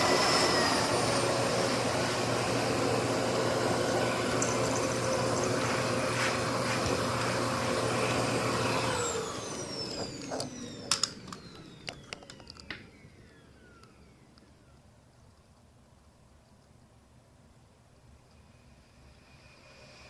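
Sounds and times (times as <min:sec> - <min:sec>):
vacuum cleaner motor whine: 0:00.0 - 0:15.0
sharp clicks and knocks: 0:09.9 - 0:12.9.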